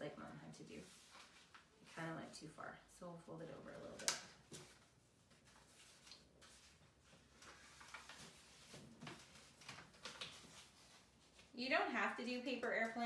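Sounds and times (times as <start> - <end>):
paper rustling and crinkling: 0.8 - 2.1, 3.8 - 11.6.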